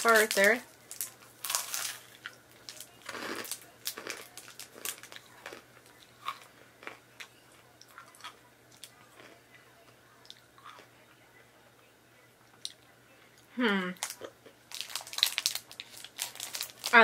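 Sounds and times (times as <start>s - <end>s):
person crunching candy bar: 0.1s - 9.4s, 10.2s - 10.9s, 14.0s - 17.0s.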